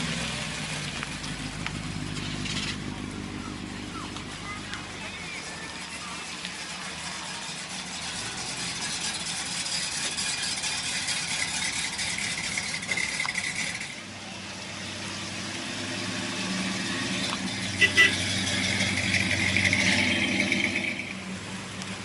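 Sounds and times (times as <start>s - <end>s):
car engines idling: 0.0s - 22.0s
vehicle passing by: 13.3s - 22.0s.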